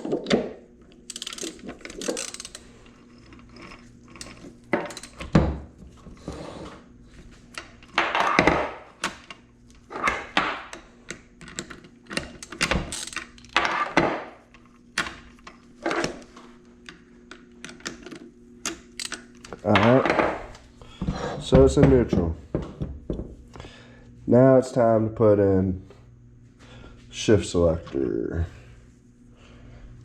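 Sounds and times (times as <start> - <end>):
gearbox clicks and clunks: 0.0 - 5.4.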